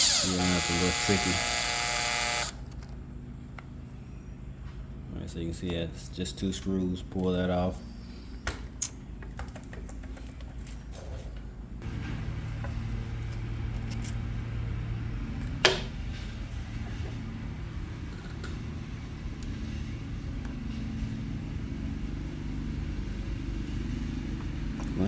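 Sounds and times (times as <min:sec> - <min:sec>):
engine humming: 0:11.8 - 0:25.0.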